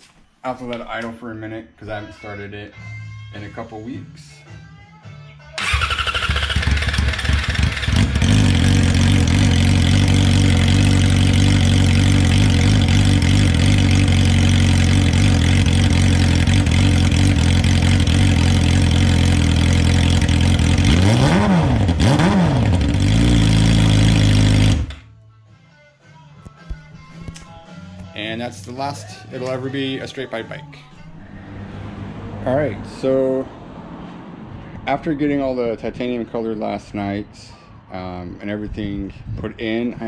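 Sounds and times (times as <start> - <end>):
motorcycle engine idling: 5.6 - 20.9.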